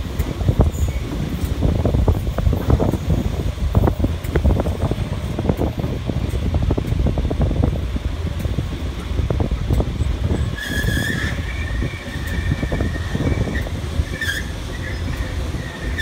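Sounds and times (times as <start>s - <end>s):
train rumbling on track: 0.0s - 16.0s
high-pitched wheel squeal: 10.3s - 16.0s.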